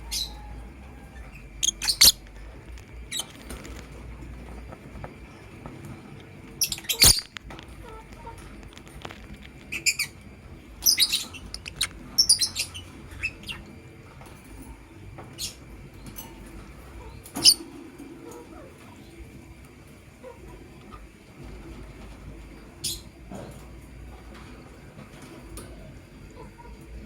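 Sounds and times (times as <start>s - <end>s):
lovebirds chirping: 0.0s - 8.5s, 9.6s - 13.7s.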